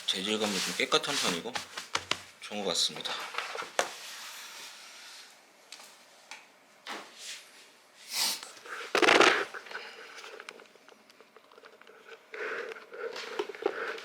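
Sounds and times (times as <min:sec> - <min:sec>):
fabric rustling: 0:00.0 - 0:02.2.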